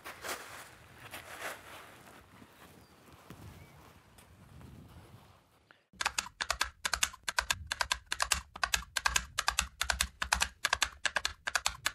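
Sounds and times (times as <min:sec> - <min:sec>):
rapid keyboard typing: 0:06.0 - 0:11.9.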